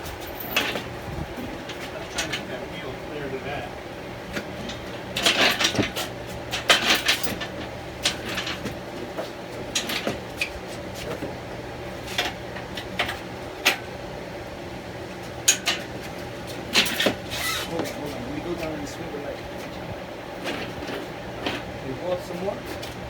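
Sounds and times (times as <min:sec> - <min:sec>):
metal clanks and rattles: 0:00.2 - 0:02.6, 0:04.3 - 0:11.3, 0:15.4 - 0:18.8, 0:20.4 - 0:21.7.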